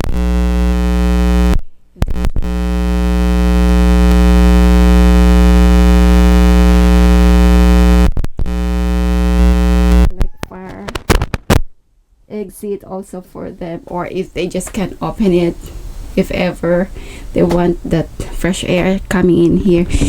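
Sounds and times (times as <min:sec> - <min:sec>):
electronic buzzing drone: 0:00.0 - 0:10.1.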